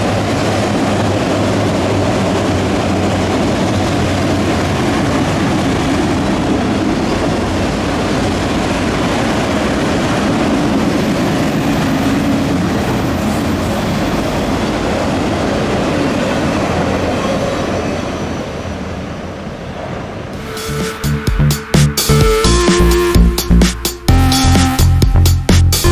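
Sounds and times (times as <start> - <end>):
freight train wheels rumbling on rails: 0.0 - 25.9.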